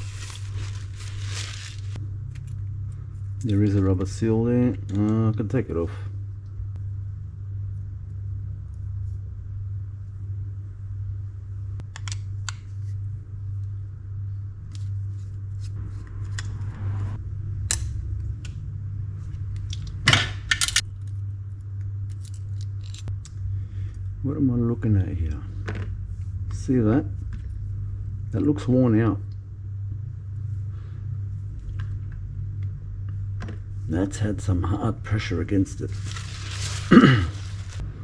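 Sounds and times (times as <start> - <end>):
low hum: 0.0 - 38.0
metal parts and tools clinking: 20.1 - 20.8, 22.1 - 23.1.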